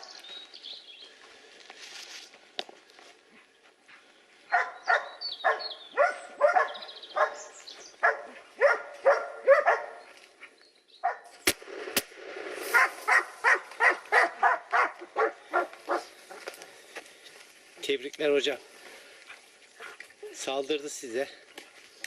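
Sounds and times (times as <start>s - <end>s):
dogs barking: 4.5s - 10.1s, 11.0s - 11.3s, 12.7s - 16.5s
gunshots: 11.4s - 13.3s.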